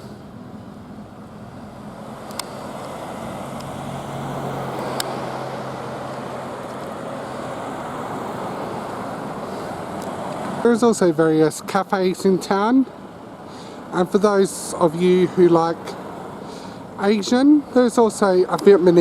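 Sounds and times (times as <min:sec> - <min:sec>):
vehicle driving past: 0:00.0 - 0:11.3.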